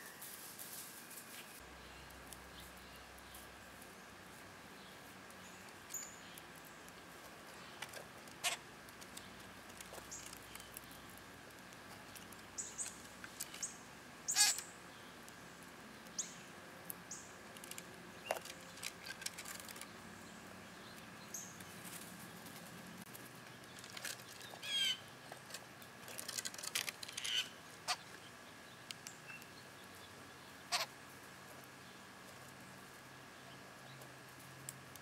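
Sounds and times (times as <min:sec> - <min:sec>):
sharp rustling clicks: 0:05.6 - 0:13.7, 0:17.4 - 0:19.9, 0:25.3 - 0:27.5.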